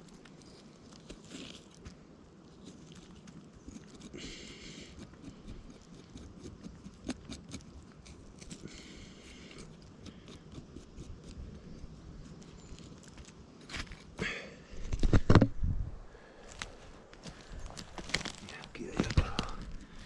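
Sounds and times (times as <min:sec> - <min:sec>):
footsteps in wet undergrowth: 0:16.4 - 0:20.0
twigs snapping: 0:16.4 - 0:20.0.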